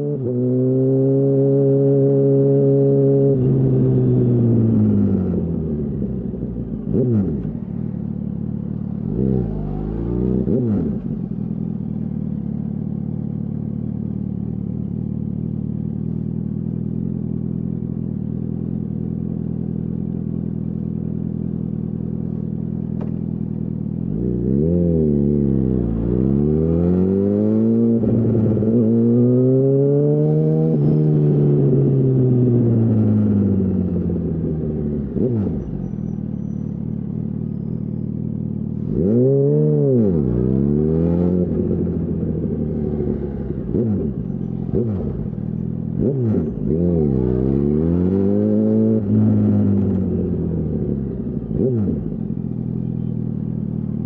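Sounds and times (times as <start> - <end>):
motorcycle engine revving and idling: 0.0 - 54.0.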